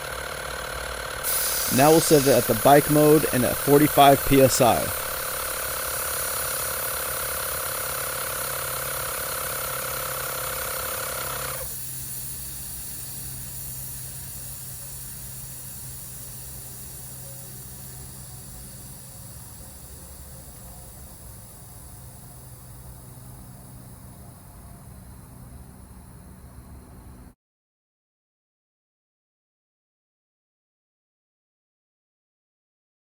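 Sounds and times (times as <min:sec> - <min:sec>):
air compressor running: 0:00.0 - 0:27.3
quiet hum and high whine: 0:01.3 - 0:06.0, 0:13.0 - 0:27.3.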